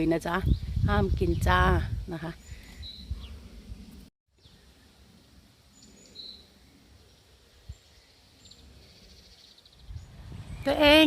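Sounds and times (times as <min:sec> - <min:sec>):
small bird chirping: 0:05.7 - 0:11.0.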